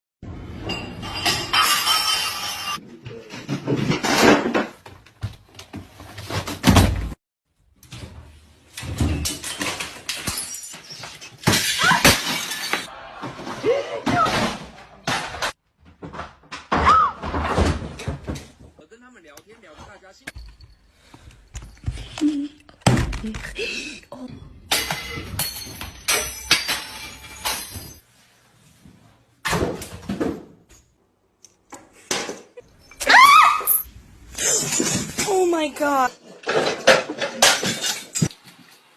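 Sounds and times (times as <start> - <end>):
objects clattering and falling: 0.6 - 7.2, 8.7 - 18.8, 20.3 - 28.0, 33.7 - 38.9.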